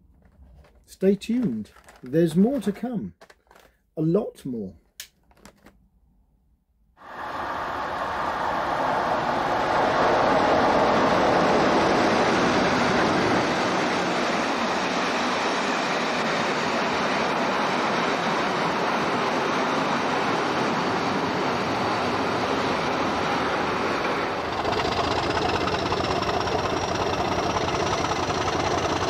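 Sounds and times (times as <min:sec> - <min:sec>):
passenger train running past: 0:07.0 - 0:29.0.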